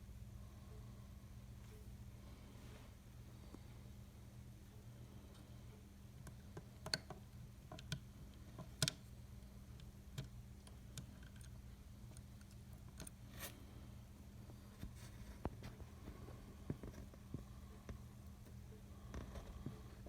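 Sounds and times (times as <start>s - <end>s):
steady low hum: 0.0s - 20.0s
small clicks and taps: 6.2s - 9.1s.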